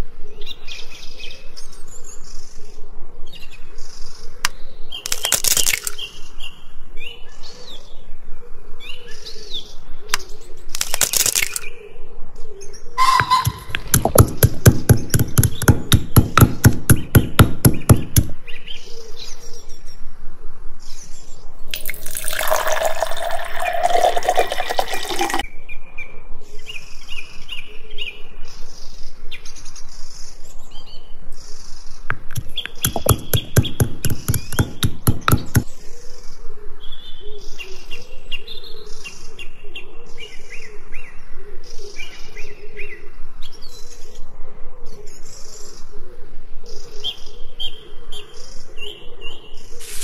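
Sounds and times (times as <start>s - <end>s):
birds chirping: 11.4s - 20.0s, 20.9s - 44.3s
rapid knocks: 13.5s - 18.3s, 32.4s - 35.7s.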